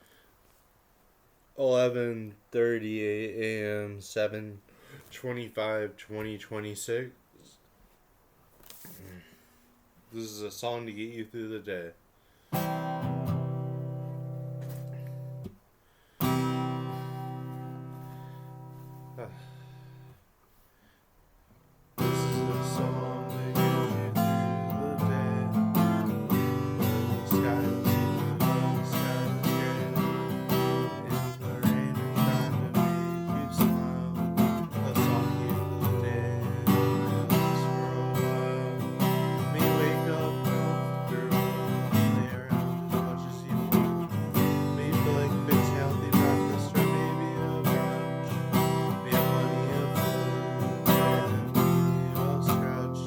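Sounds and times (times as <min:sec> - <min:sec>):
song with strummed acoustic guitar: 0:11.7 - 0:20.2, 0:22.0 - 0:53.0.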